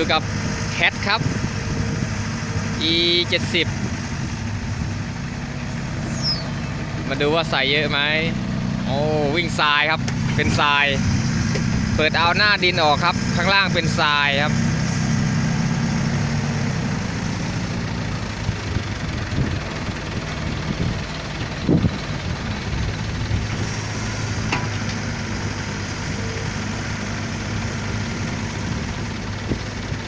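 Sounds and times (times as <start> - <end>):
heavy diesel engines running: 0.0 - 30.0
heavy thump: 24.4 - 25.0.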